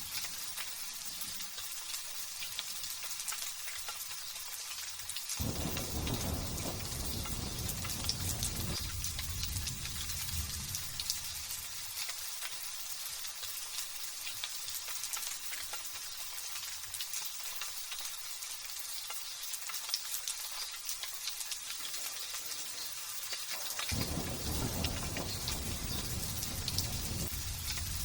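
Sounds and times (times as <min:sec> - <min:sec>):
light drizzle pattering: 0:00.0 - 0:28.0
thunder rolling: 0:05.4 - 0:11.6, 0:23.9 - 0:28.0.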